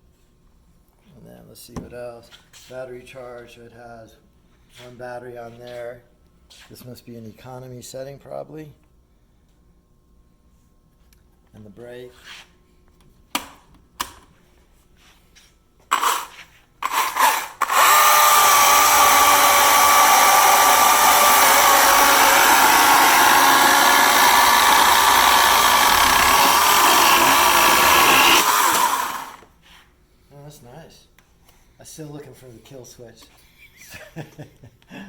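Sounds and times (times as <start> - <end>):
battery chainsaw whining: 16.8 - 29.5
chainsaw clicks: 21.3 - 29.4.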